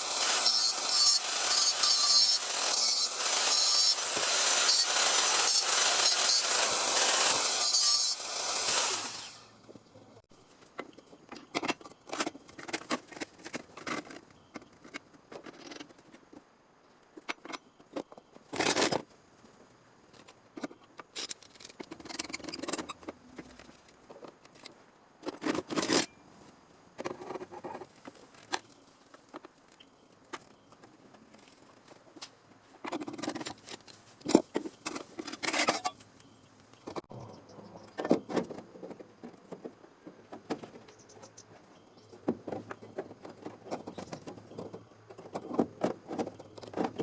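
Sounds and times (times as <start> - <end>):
power tool running: 0.0 - 9.5.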